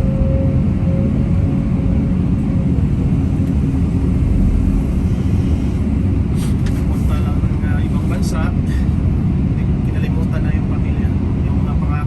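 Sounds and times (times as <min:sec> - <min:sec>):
heavy diesel engine rumbling: 0:00.0 - 0:12.0.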